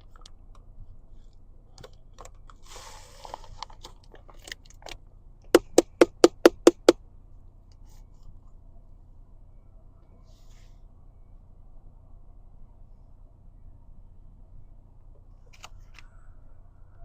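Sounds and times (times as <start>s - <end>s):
hard object tapping: 5.6s - 7.0s.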